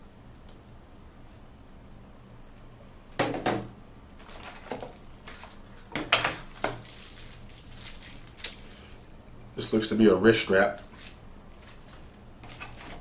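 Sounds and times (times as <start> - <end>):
packaging rustling: 4.2 - 9.1, 10.7 - 13.0.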